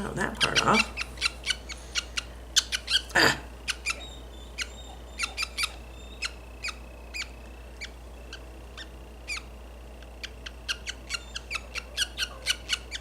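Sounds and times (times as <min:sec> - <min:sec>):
budgerigar chick calling: 0:00.4 - 0:09.5, 0:10.2 - 0:13.0.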